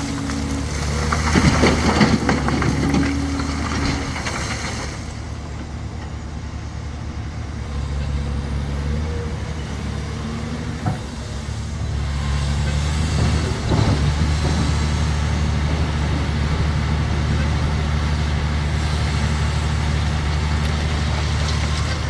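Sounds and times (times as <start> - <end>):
large diesel engine running: 0.0 - 22.0.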